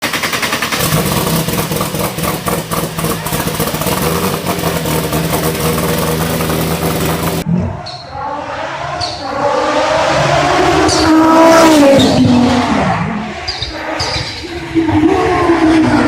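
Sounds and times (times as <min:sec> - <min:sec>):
car engine running with crackles: 0:00.1 - 0:07.4.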